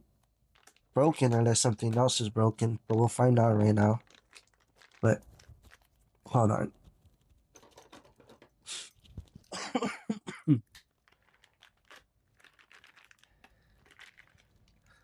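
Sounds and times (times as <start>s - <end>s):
small plastic parts clicking: 0.5s - 2.2s.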